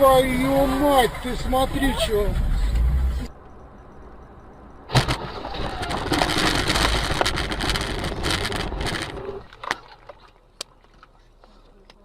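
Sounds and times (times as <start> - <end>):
moving vehicle rushing noise: 4.8 - 9.5.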